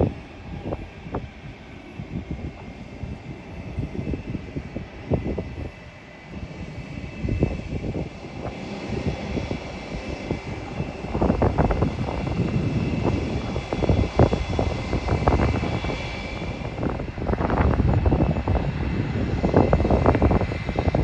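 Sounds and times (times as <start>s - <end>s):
airliner engines whining: 0.0s - 21.0s
wind buffeting microphone: 0.0s - 21.0s.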